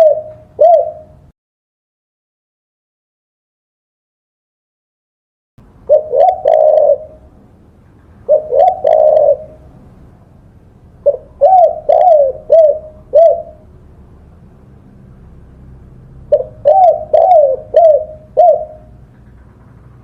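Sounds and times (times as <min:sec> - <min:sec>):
dove cooing: 0:00.0 - 0:01.3, 0:05.9 - 0:07.4, 0:08.2 - 0:09.8, 0:11.0 - 0:13.7, 0:16.3 - 0:19.0.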